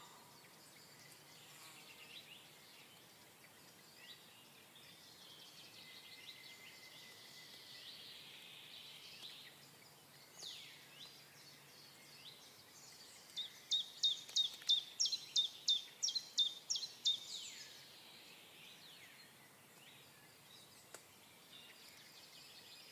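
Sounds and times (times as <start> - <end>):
faint bird chirps: 0.0 - 22.9
songbird singing: 0.0 - 22.9.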